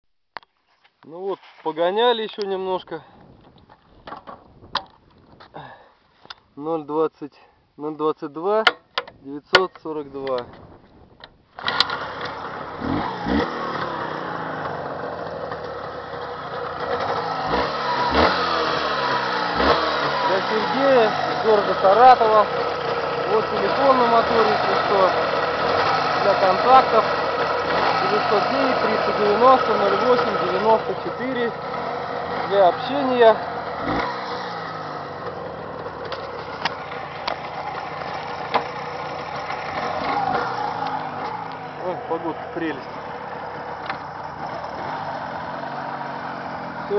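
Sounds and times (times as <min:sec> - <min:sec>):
two-stroke motorcycle engine running: 0:11.6 - 0:46.9.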